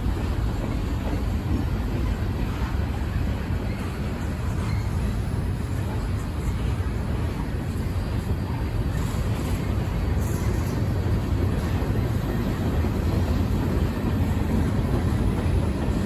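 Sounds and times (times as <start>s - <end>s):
freight train rumbling on rails: 0.0s - 16.0s.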